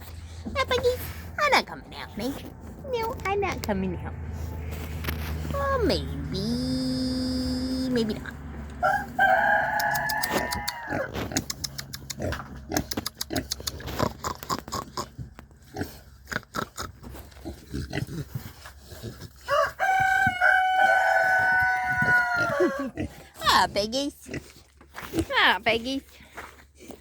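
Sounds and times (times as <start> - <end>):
rooster crowing: 8.8 - 11.1, 19.4 - 23.0.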